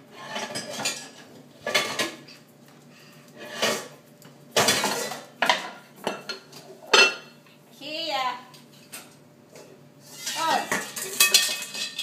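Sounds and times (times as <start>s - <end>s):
pots and pans clanking: 0.0s - 2.3s, 3.4s - 7.4s, 9.6s - 12.0s.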